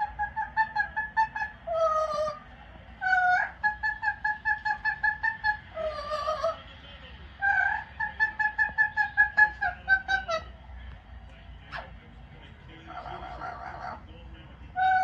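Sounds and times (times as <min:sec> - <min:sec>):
parrot calling: 0:00.0 - 0:06.7, 0:07.4 - 0:10.6, 0:11.6 - 0:12.1, 0:12.8 - 0:14.1, 0:14.7 - 0:15.0.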